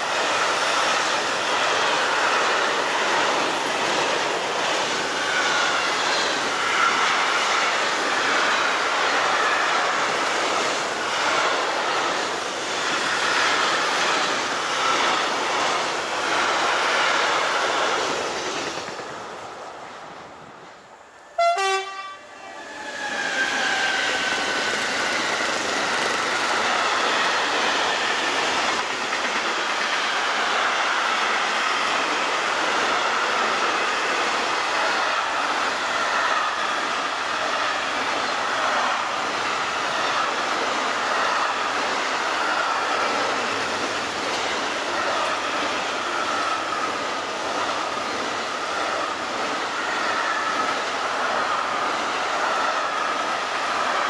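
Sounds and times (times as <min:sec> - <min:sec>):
freight train wheels rumbling: 0:00.0 - 0:54.0
locomotive horn blast: 0:21.4 - 0:22.3.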